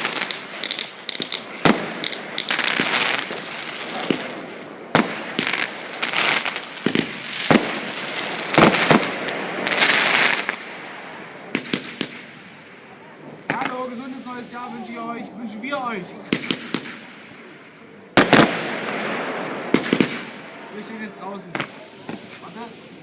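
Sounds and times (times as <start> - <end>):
fireworks bangs: 0.0 - 23.0
fireworks crackling: 0.0 - 23.0.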